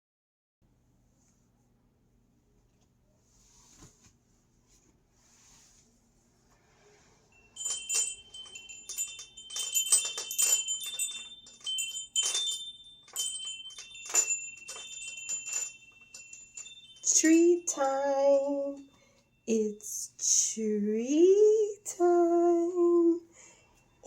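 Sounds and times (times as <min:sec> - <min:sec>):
faint soft rustles: 0:02.6 - 0:19.5
small metal bells ringing: 0:07.3 - 0:19.8.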